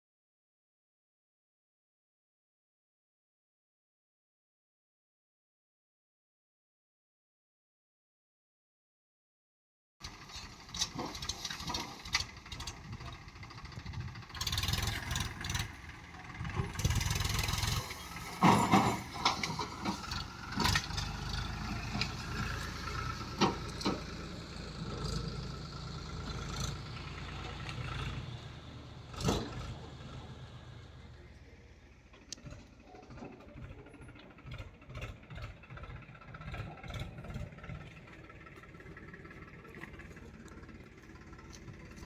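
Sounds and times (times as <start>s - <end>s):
diesel engine running: 10.0s - 42.0s.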